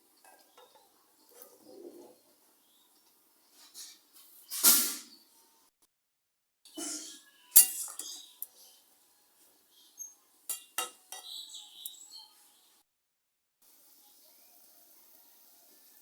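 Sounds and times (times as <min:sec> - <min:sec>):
metal utensils clinking on pots: 0:00.0 - 0:02.3, 0:06.8 - 0:08.6, 0:10.5 - 0:11.4.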